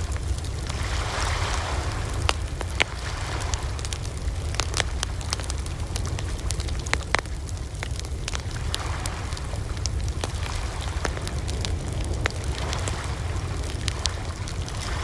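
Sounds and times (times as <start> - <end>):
fire crackling and popping: 0.0 - 15.0
flame rushing: 0.0 - 15.0
low rumble of flames: 0.0 - 15.0.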